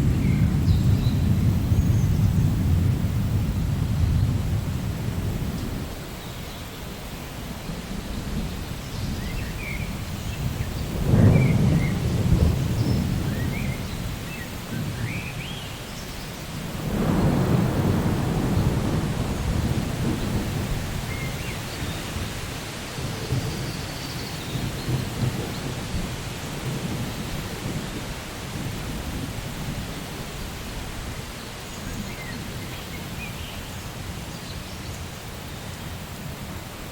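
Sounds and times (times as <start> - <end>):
rolling thunder: 0.0 - 6.1, 7.5 - 15.5, 16.5 - 30.4
steady rain: 0.0 - 36.9.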